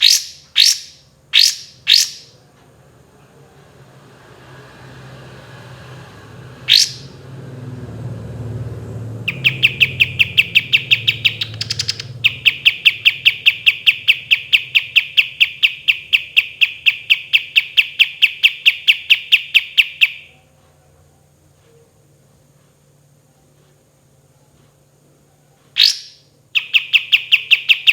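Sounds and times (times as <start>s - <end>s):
songbird singing: 0.0s - 2.4s, 6.6s - 7.2s, 9.1s - 20.5s, 25.8s - 27.9s.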